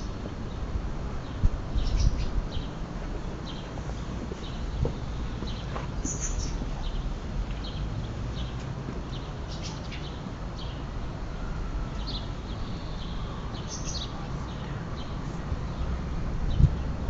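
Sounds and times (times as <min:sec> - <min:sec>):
birds chirping: 0:00.0 - 0:11.0, 0:11.9 - 0:17.0
steady low rumble: 0:10.8 - 0:17.0.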